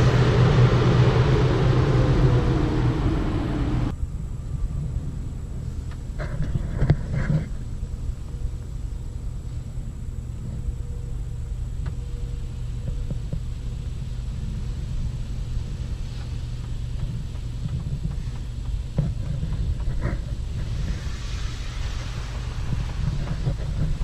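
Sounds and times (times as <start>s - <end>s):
low rumble inside car wash: 0.0s - 24.0s
hiss of car wash spray: 13.9s - 17.2s, 20.0s - 24.0s.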